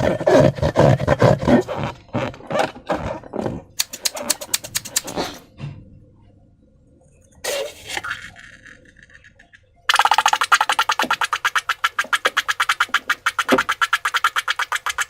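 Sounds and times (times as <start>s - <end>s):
slime squelching by hand: 9.9s - 15.0s.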